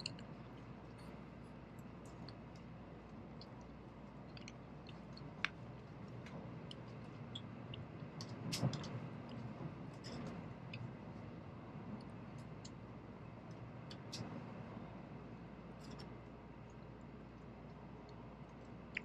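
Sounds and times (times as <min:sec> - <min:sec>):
small clicks and creaks: 0:04.3 - 0:10.9.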